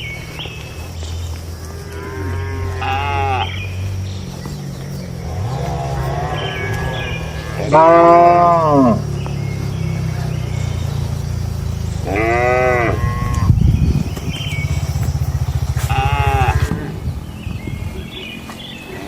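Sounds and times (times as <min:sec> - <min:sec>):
cattle mooing: 0:01.6 - 0:03.8, 0:05.2 - 0:10.7, 0:11.7 - 0:17.0
steady low rumble: 0:03.5 - 0:18.3.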